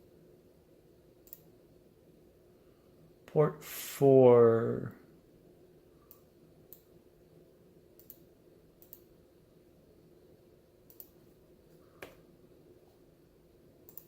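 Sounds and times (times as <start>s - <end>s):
faint steady hum: 0.0s - 14.0s
computer mouse clicking: 1.2s - 1.5s, 6.1s - 6.9s, 8.0s - 9.1s, 10.9s - 11.3s.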